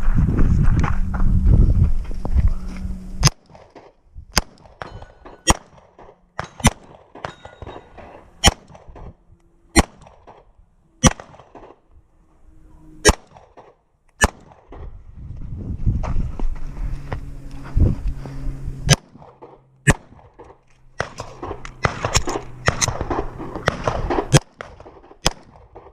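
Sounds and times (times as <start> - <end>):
pistol shots: 3.2 - 11.8, 13.0 - 14.9, 18.9 - 25.9
faint ringing tones: 4.8 - 5.5, 6.2 - 8.4.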